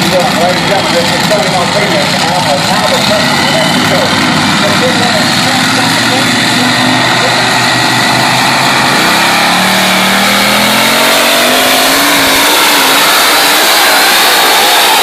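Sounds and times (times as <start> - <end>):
loud vehicle engine at full throttle: 0.0 - 15.0.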